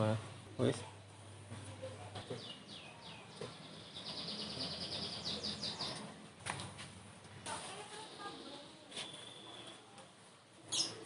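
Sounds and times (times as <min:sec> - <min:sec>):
small bird singing: 0:02.2 - 0:06.1, 0:08.0 - 0:09.8, 0:10.6 - 0:11.0.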